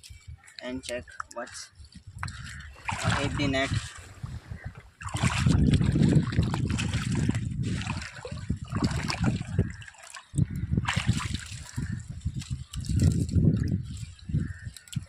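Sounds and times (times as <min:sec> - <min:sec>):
sea water sloshing and splashing: 0:02.3 - 0:13.2.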